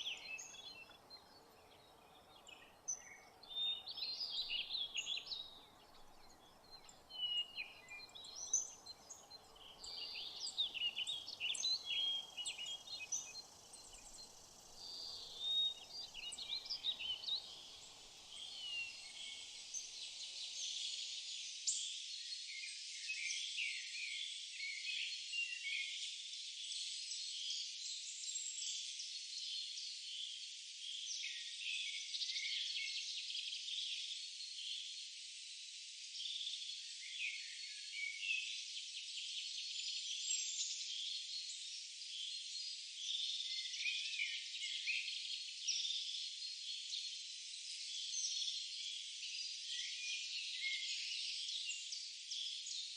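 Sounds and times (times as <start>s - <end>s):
birds chirping: 0.0s - 21.0s
faint background hiss: 0.0s - 52.9s.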